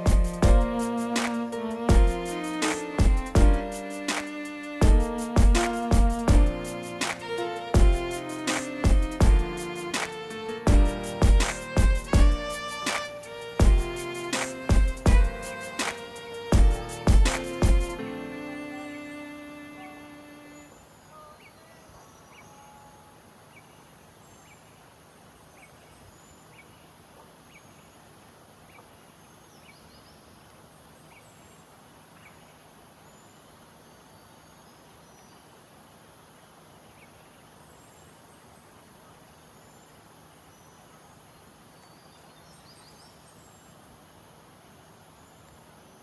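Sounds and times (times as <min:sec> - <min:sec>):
steady hiss: 0:00.0 - 0:25.3.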